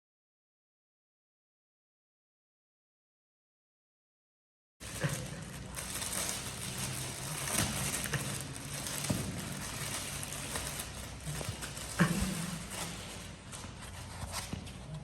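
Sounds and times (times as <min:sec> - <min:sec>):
packaging crackling and rustling: 0:04.8 - 0:14.6.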